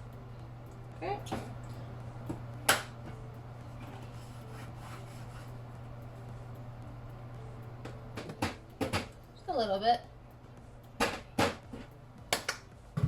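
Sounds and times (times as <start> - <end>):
steady low hum: 0.0 - 13.0
food preparation scraping: 3.8 - 5.6.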